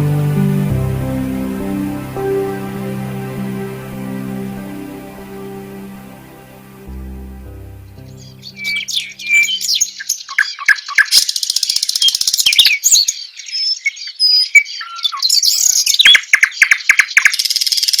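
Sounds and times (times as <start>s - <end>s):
small birds chirping: 8.1s - 18.0s.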